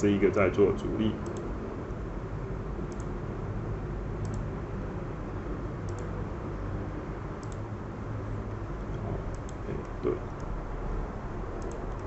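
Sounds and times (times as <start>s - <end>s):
steady low hum: 0.0s - 12.0s
computer mouse double-clicks: 4.2s - 4.5s, 7.4s - 7.6s, 11.6s - 12.0s.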